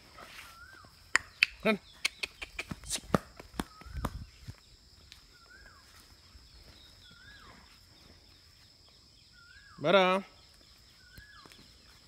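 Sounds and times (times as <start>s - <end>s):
footsteps on grass: 0.0s - 1.1s, 2.6s - 8.9s
high insect drone: 2.7s - 12.0s.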